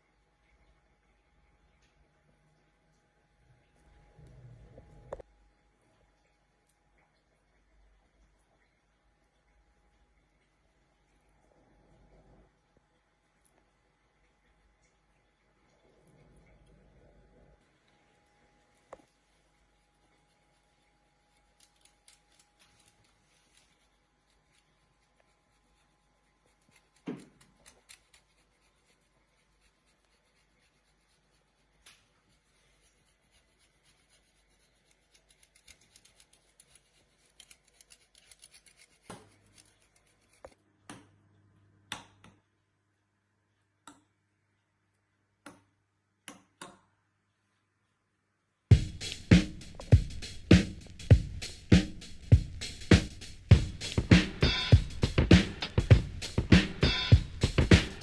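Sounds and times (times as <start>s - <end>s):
utensils scraping and clicking: 21.2s - 40.6s.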